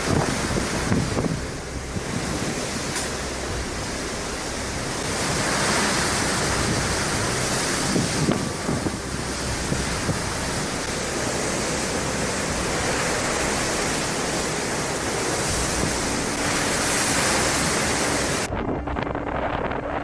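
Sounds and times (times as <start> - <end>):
rushing water: 0.0 - 18.5
storm wind: 0.0 - 20.0.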